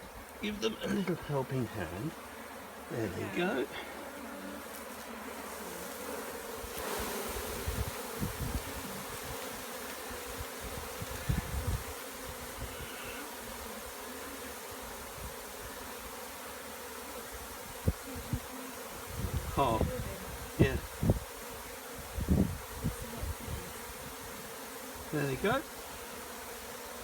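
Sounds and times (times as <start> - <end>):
bee swarm buzzing: 0.0 - 27.0.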